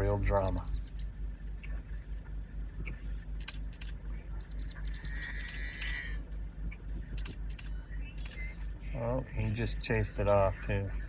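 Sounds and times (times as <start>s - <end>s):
low steady rumble: 0.0s - 11.0s
blackbird calls: 0.3s - 3.3s, 4.1s - 11.0s
sharp clicks: 2.8s - 4.0s, 6.7s - 8.5s.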